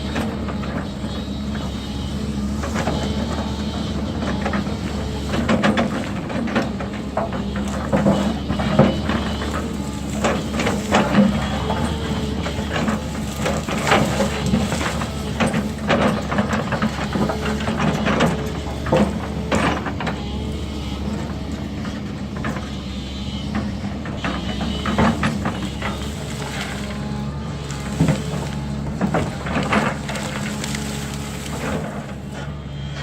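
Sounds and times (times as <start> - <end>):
heavy machine engine running: 0.0 - 33.0.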